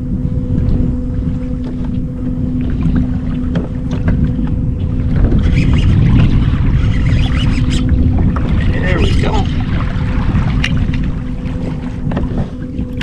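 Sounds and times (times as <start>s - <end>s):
low hum: 0.0s - 13.0s
wind rumbling on microphone: 0.0s - 13.0s
water knocks and splashes: 2.6s - 13.0s.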